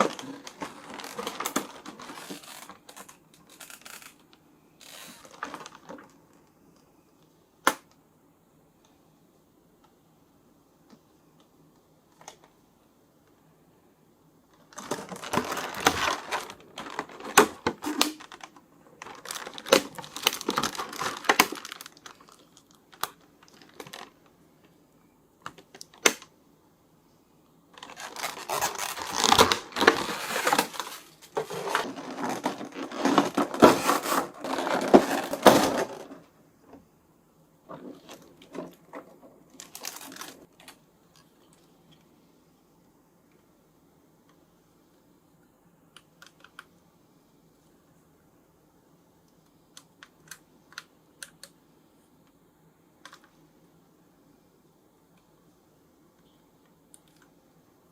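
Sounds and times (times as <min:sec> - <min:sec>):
plastic packaging crinkling: 0:00.0 - 0:06.2, 0:14.5 - 0:24.3, 0:27.7 - 0:36.3, 0:37.7 - 0:41.5.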